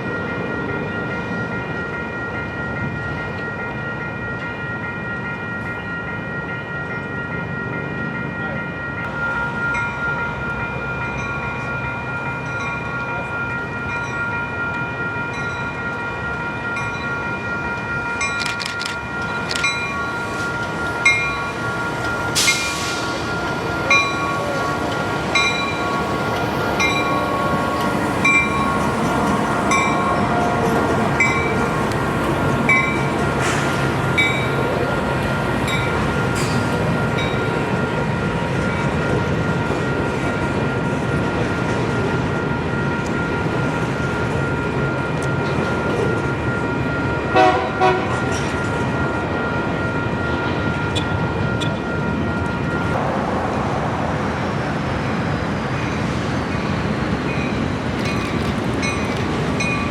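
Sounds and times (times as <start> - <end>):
freight train passing: 0.0 - 59.9
sharp clicks: 18.4 - 19.7.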